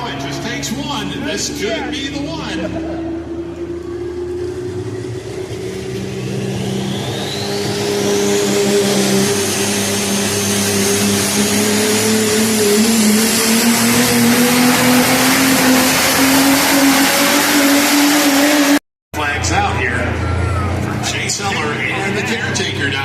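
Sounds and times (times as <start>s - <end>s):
diesel truck engine at full throttle: 0.0s - 23.0s
high steady whistle: 6.3s - 10.8s.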